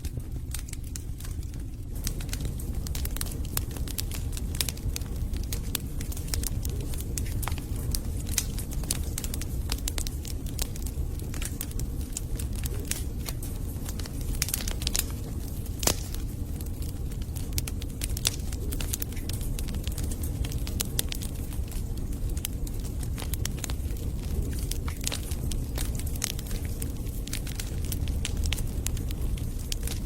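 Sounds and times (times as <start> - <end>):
burning logs crackling and snapping: 0.0 - 30.0
low rumble of flames: 0.0 - 30.0
loud pop from fire: 15.7 - 16.2.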